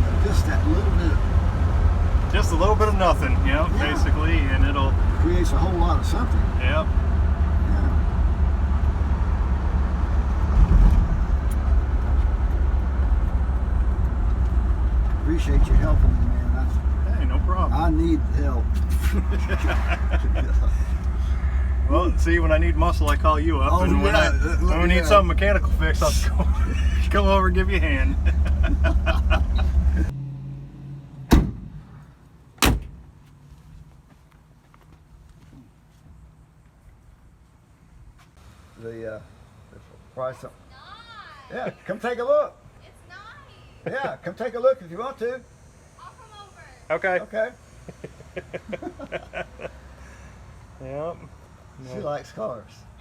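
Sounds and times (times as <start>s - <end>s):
car engine running: 0.0s - 30.1s, 31.1s - 33.2s
road noise: 0.0s - 53.0s
car doors slamming: 31.2s - 32.0s, 32.6s - 33.2s.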